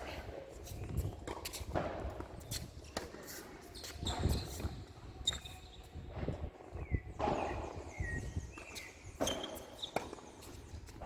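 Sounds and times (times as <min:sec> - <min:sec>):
players' footsteps on court: 0:00.0 - 0:06.6.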